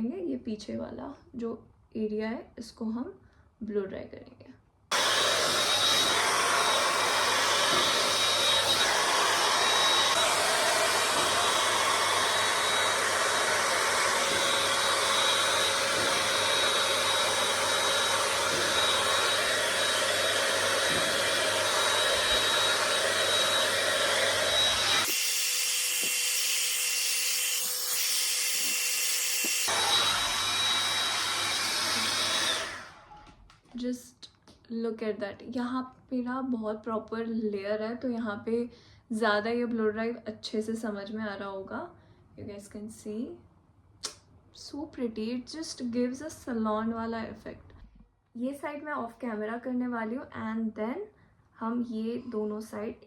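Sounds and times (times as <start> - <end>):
hot air brush whining: 4.9 - 33.4.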